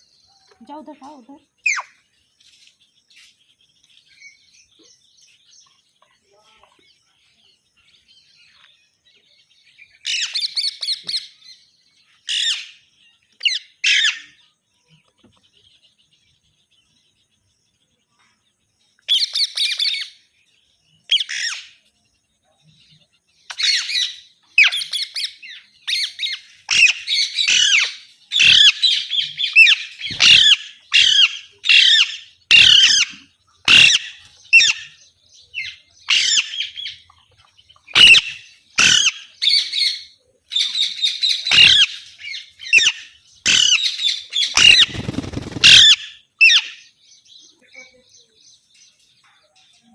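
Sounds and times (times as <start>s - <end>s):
parakeets squawking: 25.9s - 34.9s, 35.6s - 37.0s, 37.9s - 46.8s.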